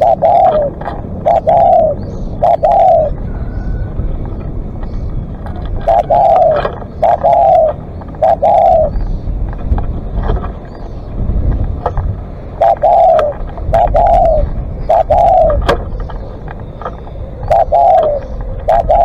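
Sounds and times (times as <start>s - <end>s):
dove cooing: 0.0s - 19.0s.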